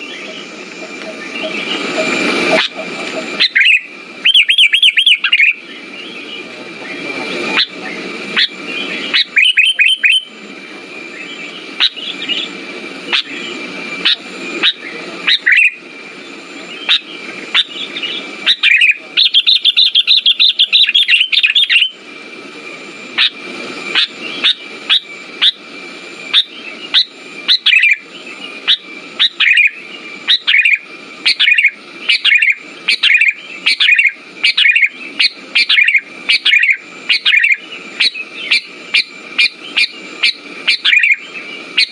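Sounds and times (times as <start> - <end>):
bulbul chirping: 7.6 - 10.3.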